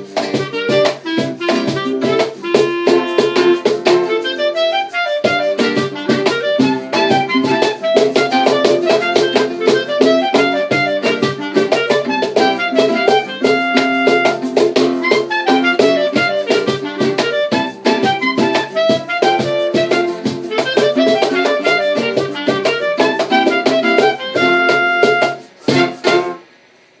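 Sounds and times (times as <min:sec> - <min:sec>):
acoustic bossa nova ensemble: 0:00.0 - 0:27.0
faint hiss: 0:25.2 - 0:27.0.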